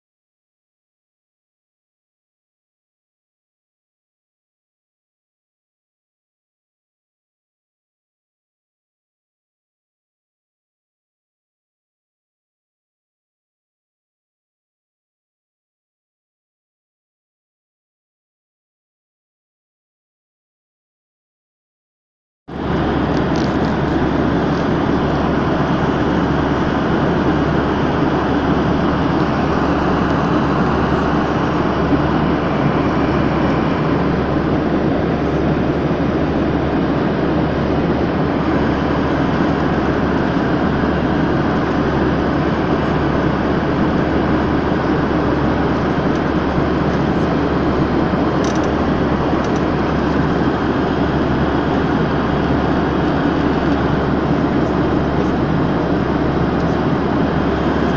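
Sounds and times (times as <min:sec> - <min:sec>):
airplane cabin engine rumble: 0:22.5 - 0:57.9.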